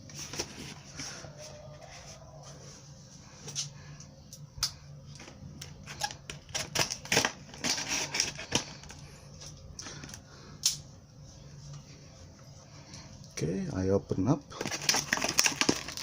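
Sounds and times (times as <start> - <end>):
faint low hum: 0.0 - 16.0
packaging rustling: 5.7 - 9.0, 14.5 - 16.0.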